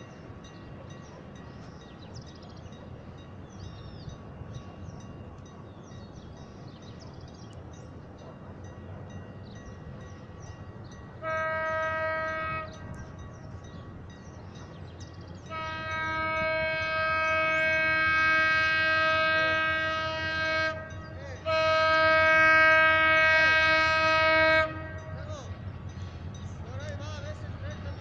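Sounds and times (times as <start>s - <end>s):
train rumbling: 0.0s - 28.0s
locomotive air horn: 11.2s - 13.0s, 15.5s - 25.1s.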